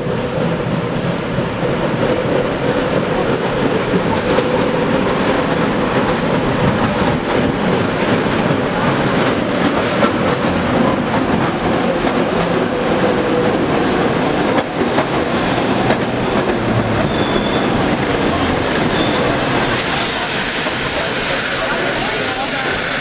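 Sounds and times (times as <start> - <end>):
train wheels rumbling: 0.0 - 23.0
wheels clacking over rail joints: 1.7 - 23.0
high hiss: 19.6 - 23.0.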